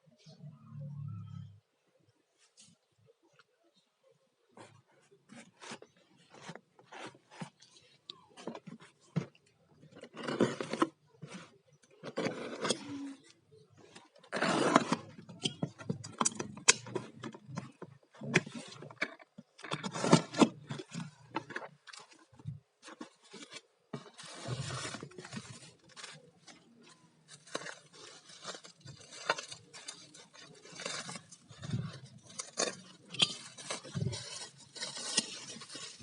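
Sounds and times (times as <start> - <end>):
packaging rustling and scraping: 4.6 - 36.0.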